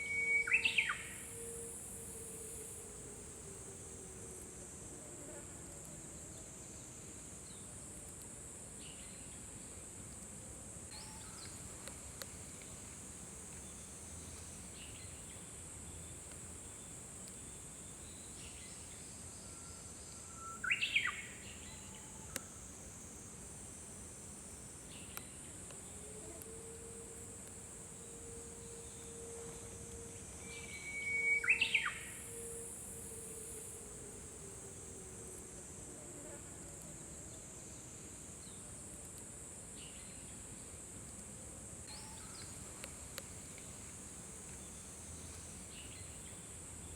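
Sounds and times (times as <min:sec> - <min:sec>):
bird singing whistled song: 0:00.0 - 0:01.5, 0:20.3 - 0:21.8, 0:30.4 - 0:32.6
insects hissing: 0:00.0 - 0:04.8, 0:10.9 - 0:38.7.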